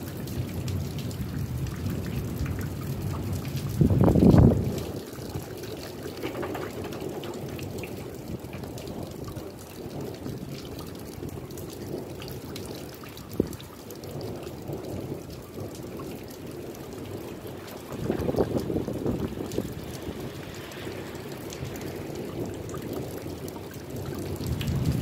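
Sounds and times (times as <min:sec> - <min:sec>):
rain drops tapping: 0:00.0 - 0:25.0.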